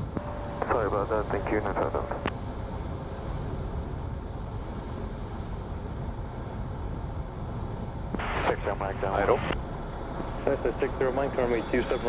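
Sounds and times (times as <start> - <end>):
airflow noise: 0.0 - 12.0
light aircraft engine drone: 0.0 - 12.0.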